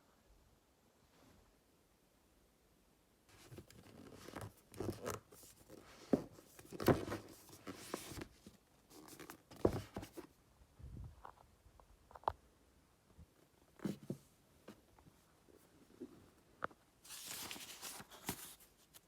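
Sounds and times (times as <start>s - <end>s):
rustling and scraping of handling: 3.3s - 10.4s, 13.2s - 19.0s.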